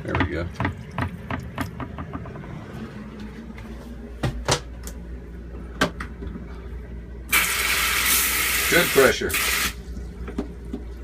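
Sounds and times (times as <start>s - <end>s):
hardware clicks and knocks: 0.0s - 2.5s
water pump humming: 0.0s - 11.0s.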